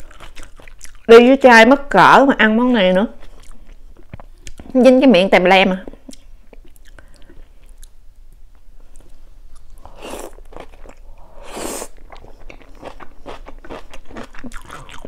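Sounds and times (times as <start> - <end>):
wet chewing with mouth clicks: 0.0 - 1.1, 3.2 - 4.7, 6.1 - 8.0, 8.9 - 15.0.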